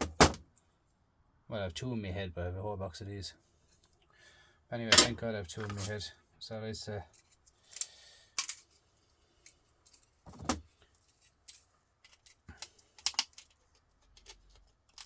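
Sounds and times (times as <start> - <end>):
metal parts and tools clinking: 4.9 - 6.1, 7.1 - 8.8, 9.4 - 15.0.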